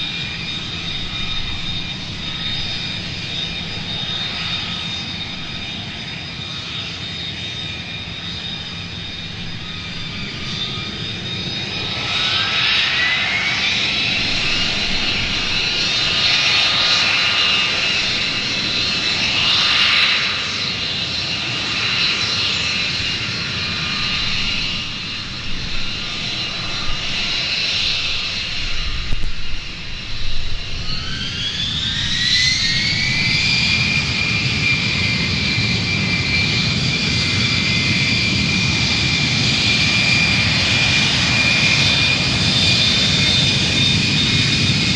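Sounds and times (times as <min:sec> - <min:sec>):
jet engine whine and rumble: 0:00.0 - 0:44.9.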